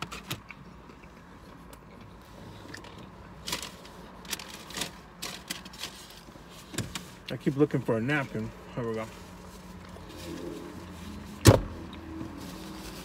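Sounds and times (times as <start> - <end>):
rustling: 2.2 - 13.0.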